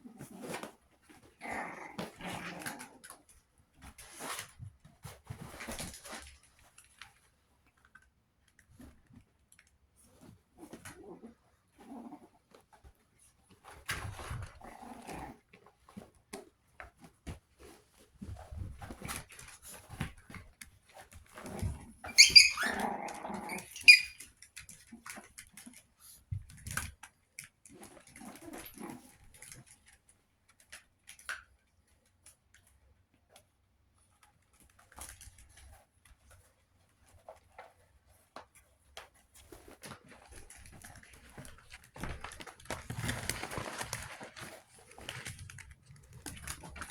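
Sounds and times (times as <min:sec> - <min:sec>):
puppies scuffling: 0:11.8 - 0:31.3, 0:34.4 - 0:46.9.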